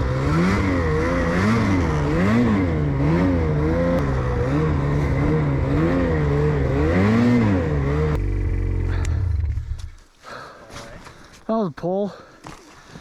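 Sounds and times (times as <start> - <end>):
snowmobile engine under heavy throttle: 0.0 - 10.0.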